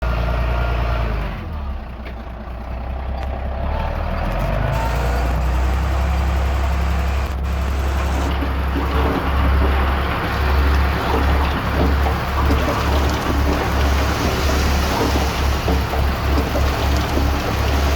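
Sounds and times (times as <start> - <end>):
diesel engine running: 0.0 - 17.9.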